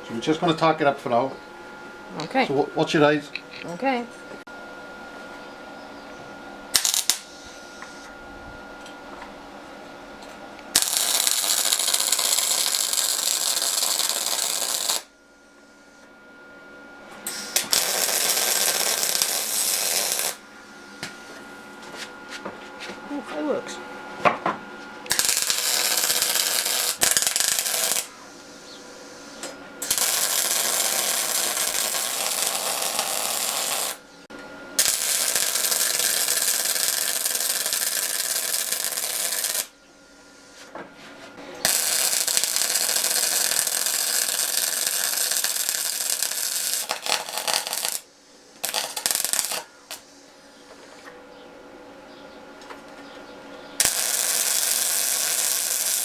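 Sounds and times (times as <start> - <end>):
welder arc crackling and sizzling: 6.7 - 8.1, 10.7 - 15.1, 17.3 - 20.4, 25.1 - 34.0, 34.8 - 39.7, 41.6 - 50.1, 53.8 - 56.0.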